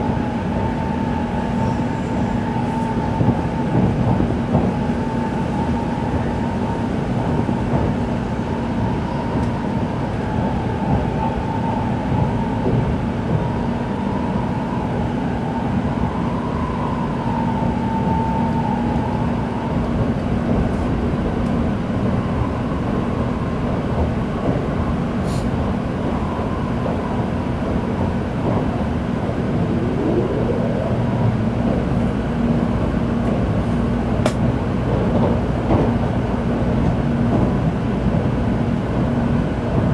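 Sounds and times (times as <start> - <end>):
train rumble inside carriage: 0.0 - 39.9
faint wavering whine: 29.2 - 32.5
short rising whine: 29.2 - 32.5.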